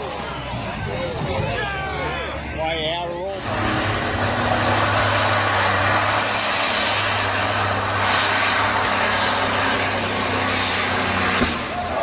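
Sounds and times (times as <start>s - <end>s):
engine running hard: 3.3s - 12.0s.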